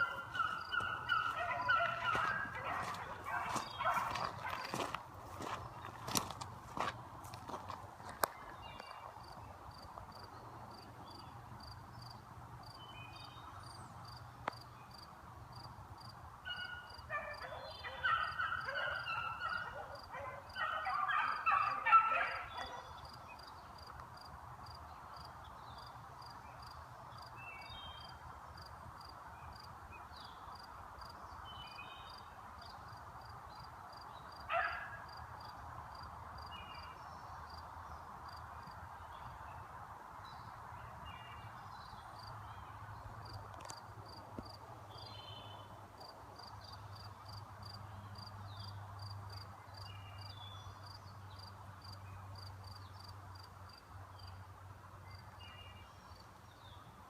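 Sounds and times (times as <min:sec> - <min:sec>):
beagles baying: 0:00.0 - 0:05.6, 0:16.5 - 0:23.0, 0:34.5 - 0:35.1.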